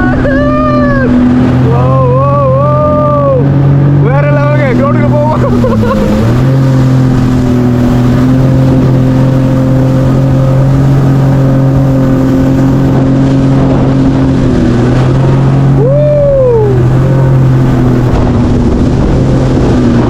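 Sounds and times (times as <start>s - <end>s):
jet ski engine running: 0.0s - 20.0s
rising and falling tone: 5.4s - 20.0s.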